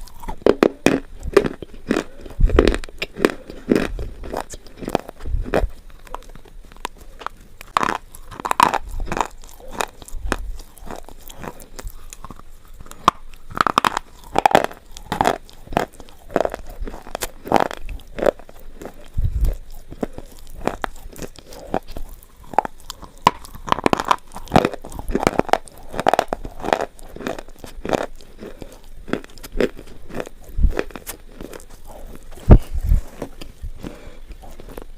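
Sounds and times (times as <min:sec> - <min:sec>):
slate pencils crunching when chewed: 0:00.0 - 0:34.9.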